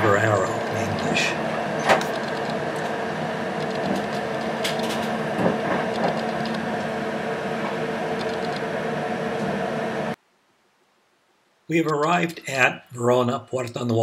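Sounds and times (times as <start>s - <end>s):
train rumbling: 0.0s - 10.2s
wheels clicking on track: 3.6s - 6.9s.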